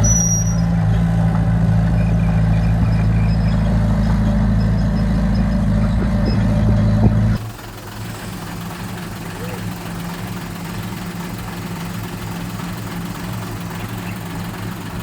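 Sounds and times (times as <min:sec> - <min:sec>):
diesel construction machinery engine: 0:00.0 - 0:15.0.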